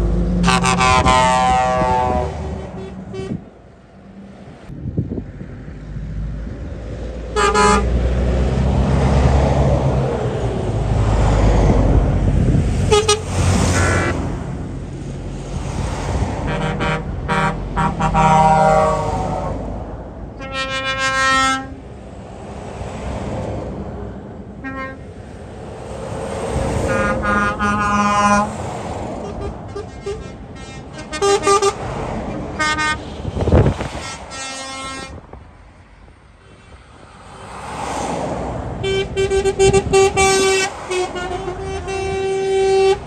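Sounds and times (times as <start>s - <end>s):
truck horn blasts: 0.0s - 3.6s, 7.3s - 8.0s, 12.8s - 14.6s, 16.4s - 19.7s, 20.4s - 21.8s, 24.6s - 25.2s, 26.8s - 35.3s, 38.8s - 43.0s
heavy engine rumble: 0.0s - 43.0s.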